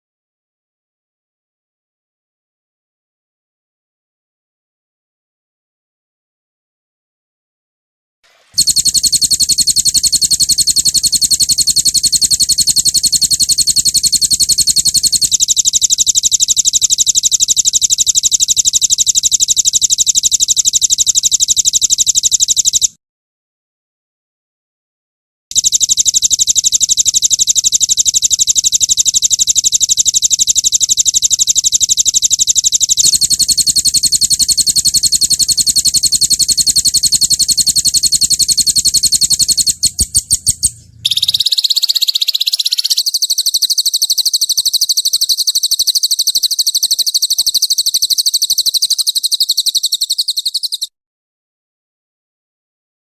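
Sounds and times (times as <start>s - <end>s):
songbird trilling: 33.0s - 50.9s.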